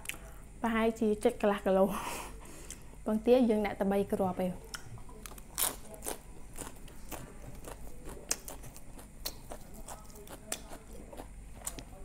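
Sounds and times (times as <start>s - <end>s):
person chewing crunchy food: 4.7s - 12.0s.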